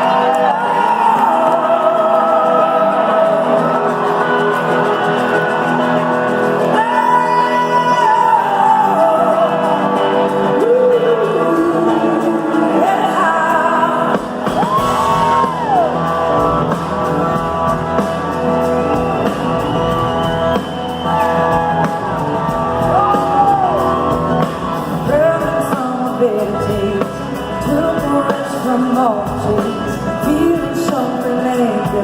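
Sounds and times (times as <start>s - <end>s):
audience shouts and whoops: 0.0s - 12.1s, 14.4s - 25.7s
live rock band playing: 0.0s - 32.0s.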